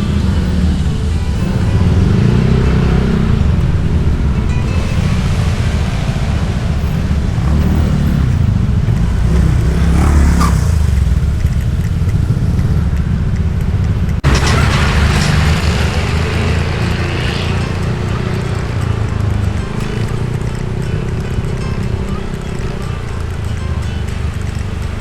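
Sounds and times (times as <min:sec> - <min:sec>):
motorbike engine rumble: 0:00.0 - 0:25.0
traffic: 0:00.0 - 0:25.0
rushing air: 0:02.2 - 0:17.2.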